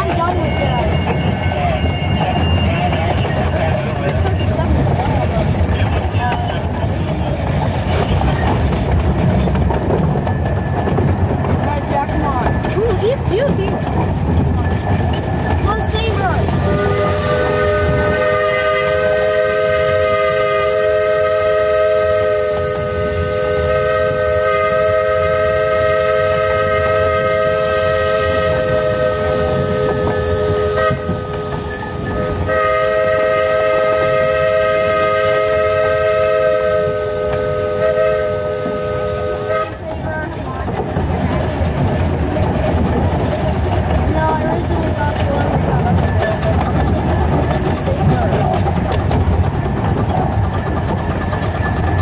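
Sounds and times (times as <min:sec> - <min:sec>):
rumble of train running: 0:00.0 - 0:52.0
steam locomotive chime whistle: 0:16.6 - 0:39.8.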